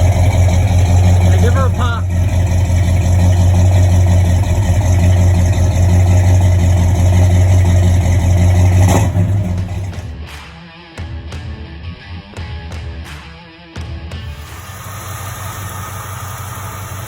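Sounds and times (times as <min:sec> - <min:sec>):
car engine running: 0:00.0 - 0:10.1, 0:14.3 - 0:17.0.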